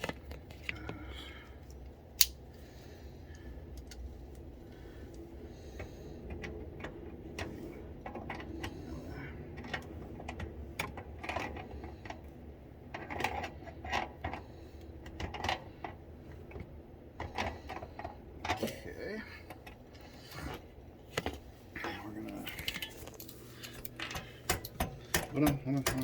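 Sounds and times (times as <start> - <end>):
pliers clicking on metal hardware: 2.2 - 2.4.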